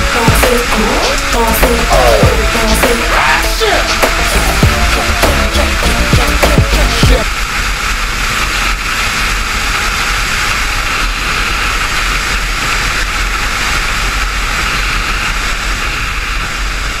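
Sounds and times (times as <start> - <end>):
motorcycle engine: 0.0 - 11.8
wind rushing: 0.0 - 17.0.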